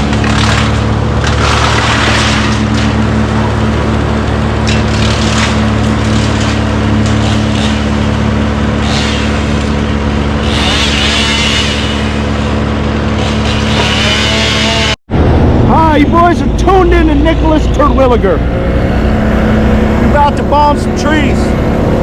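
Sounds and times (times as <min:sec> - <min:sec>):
large engine running: 0:00.0 - 0:22.0
noisy rush: 0:15.1 - 0:22.0.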